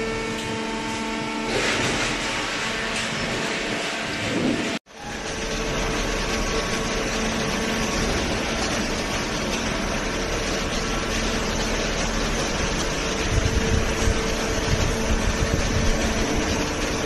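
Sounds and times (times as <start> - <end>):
hydraulic power unit humming: 0.0 - 17.0.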